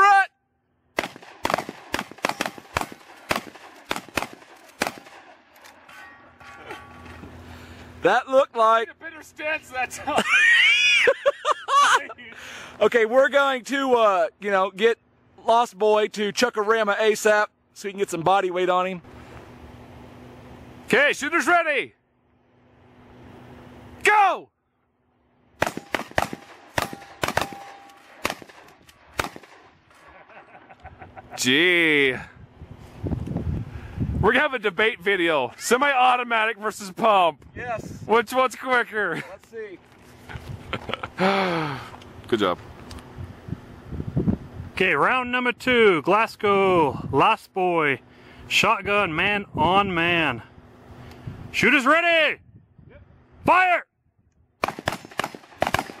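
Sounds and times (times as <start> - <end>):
shotgun shots: 1.0 - 5.4, 25.6 - 29.8, 54.6 - 56.0.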